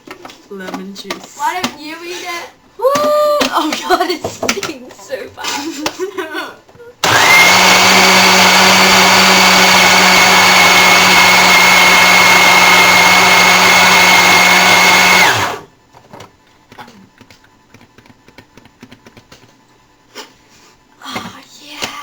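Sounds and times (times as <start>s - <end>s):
blender running: 7.0s - 15.7s.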